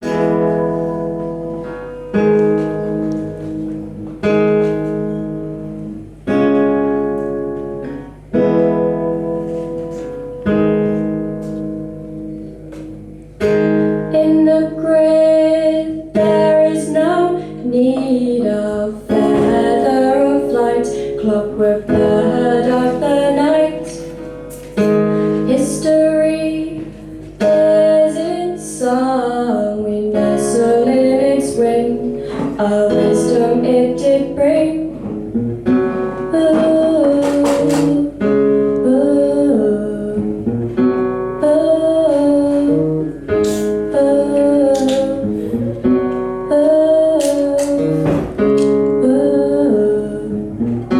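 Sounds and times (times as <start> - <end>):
acoustic guitar chords: 0.0 - 50.9
woman singing: 14.0 - 24.2, 25.4 - 35.2, 35.9 - 45.4, 46.4 - 50.9.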